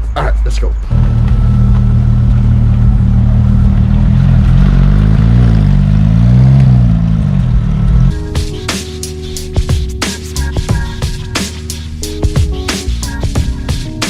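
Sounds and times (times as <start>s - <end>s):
car engine running: 0.8s - 13.9s.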